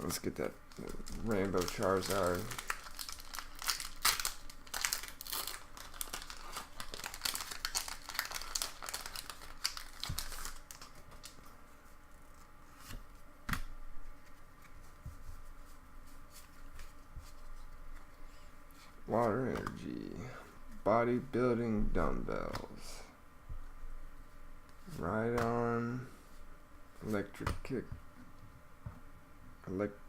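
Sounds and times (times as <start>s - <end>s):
foil wrapper crinkling and tearing: 0.7s - 11.4s
cards being handled: 0.7s - 11.5s.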